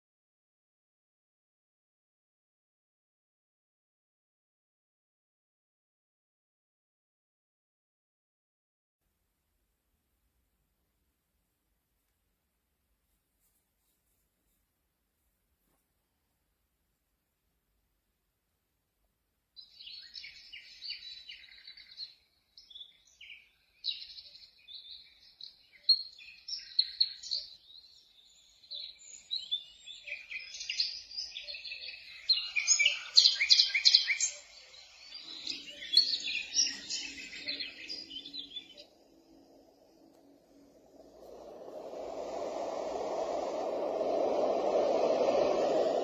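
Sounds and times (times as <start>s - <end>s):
bird chirps and twitters: 19.6s - 40.0s.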